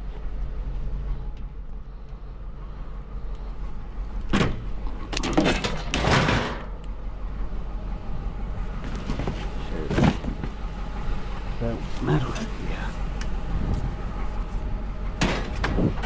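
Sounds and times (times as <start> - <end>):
rattling scraping clatter: 4.8 - 6.8, 8.8 - 12.8
vehicle engine idling: 6.7 - 16.0.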